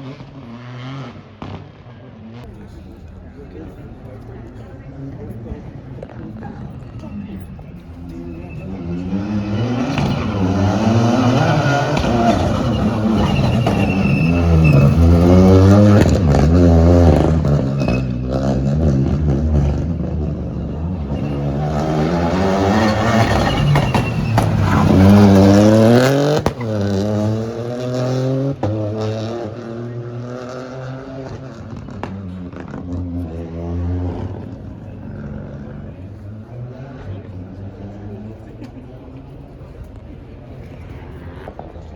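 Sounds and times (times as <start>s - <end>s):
rally car engine revving: 0.0s - 41.9s
sharp exhaust pops: 23.0s - 27.3s.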